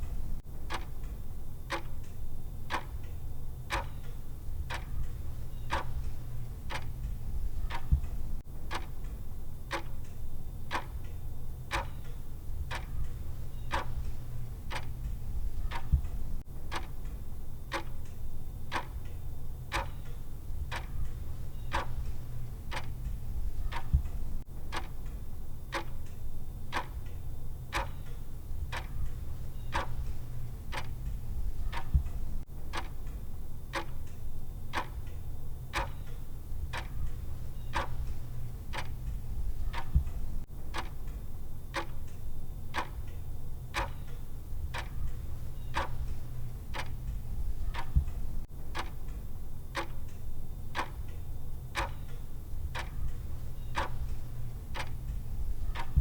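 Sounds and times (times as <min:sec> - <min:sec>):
steady low hum: 0:00.0 - 0:56.0
countdown timer ticking: 0:27.7 - 0:33.1.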